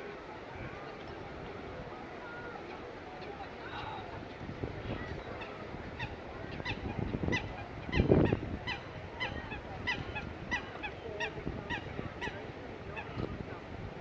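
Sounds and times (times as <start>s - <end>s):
low background noise: 0.0s - 14.0s.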